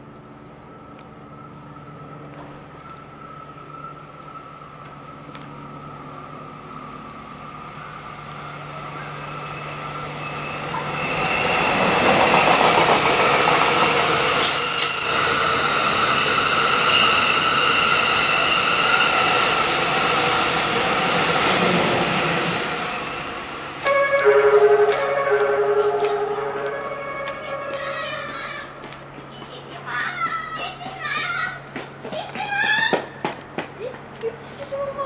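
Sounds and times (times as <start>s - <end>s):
train passing: 0.0s - 35.0s
high ringing tones: 23.8s - 28.2s.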